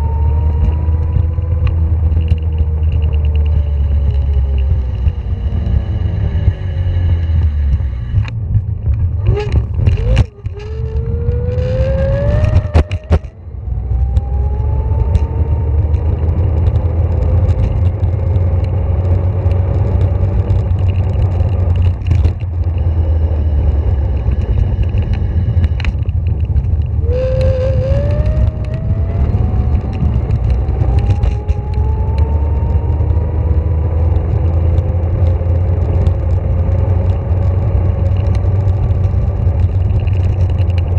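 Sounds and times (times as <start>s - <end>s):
rumble of wind and wheels: 0.0s - 40.9s
electric scooter motor whine: 9.3s - 15.8s, 22.6s - 33.4s.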